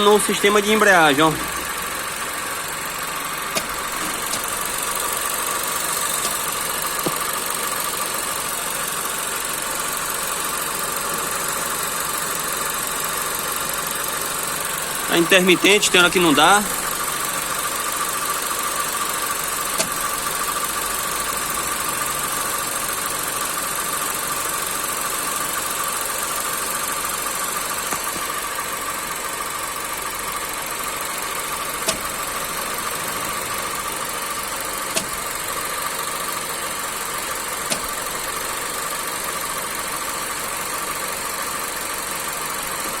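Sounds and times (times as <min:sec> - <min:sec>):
car engine idling with whine: 0:00.0 - 0:43.0
sharp mechanical knocks: 0:03.5 - 0:04.8, 0:05.8 - 0:07.4, 0:19.7 - 0:20.0, 0:31.8 - 0:32.2.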